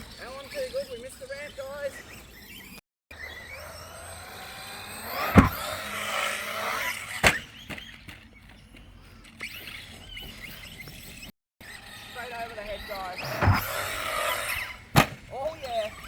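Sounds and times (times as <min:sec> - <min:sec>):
electric motor whining: 0:02.0 - 0:08.0, 0:09.1 - 0:16.0
toy truck landing impacts: 0:04.2 - 0:08.0, 0:13.2 - 0:15.3.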